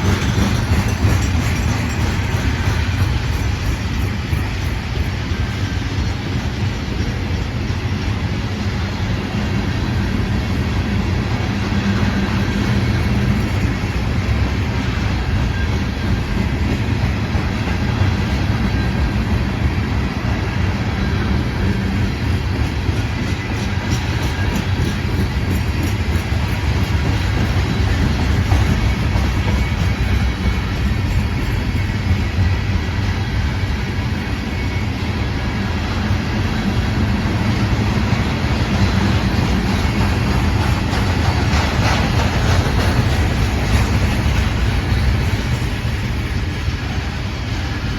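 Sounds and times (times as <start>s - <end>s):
wheels clicking on rail: 0.0s - 8.4s, 21.6s - 33.6s, 36.0s - 47.9s
freight train rolling past: 0.0s - 47.9s.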